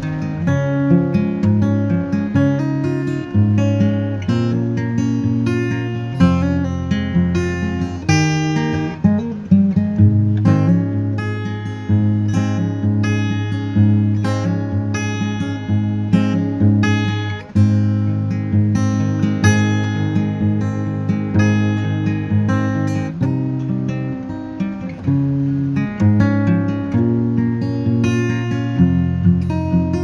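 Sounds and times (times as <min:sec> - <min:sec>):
acoustic guitar picking and strumming: 0:00.0 - 0:30.0.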